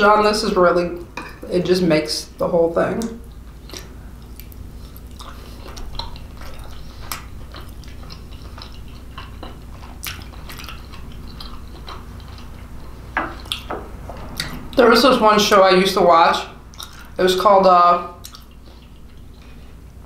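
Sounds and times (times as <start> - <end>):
person chewing: 3.2 - 14.8, 16.6 - 17.2, 18.1 - 19.9.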